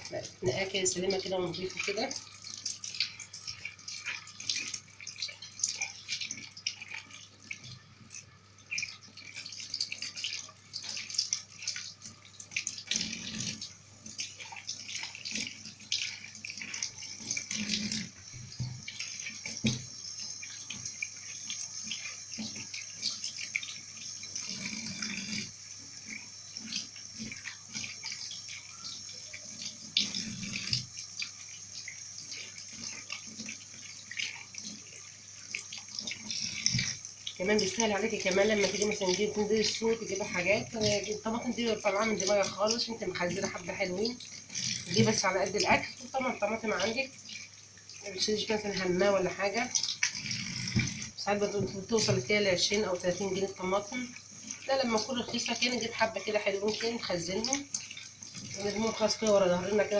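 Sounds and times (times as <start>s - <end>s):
tap running into sink: 17.3s - 21.0s, 44.8s - 45.9s, 49.8s - 52.5s
knocks and splashes: 18.3s - 20.0s, 49.8s - 52.4s.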